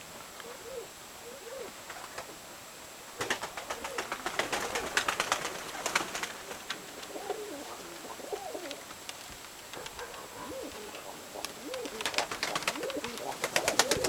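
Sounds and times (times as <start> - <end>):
pigeons cooing: 0.4 - 2.3, 3.2 - 9.0, 9.7 - 14.0
sharp clicks and claps: 8.6 - 14.0.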